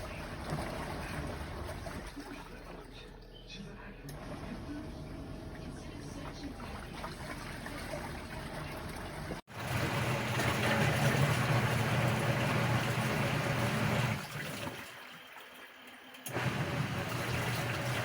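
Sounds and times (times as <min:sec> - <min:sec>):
washing machine water sloshing: 0:00.0 - 0:03.1, 0:04.2 - 0:18.0
steady motor hum: 0:16.0 - 0:18.0.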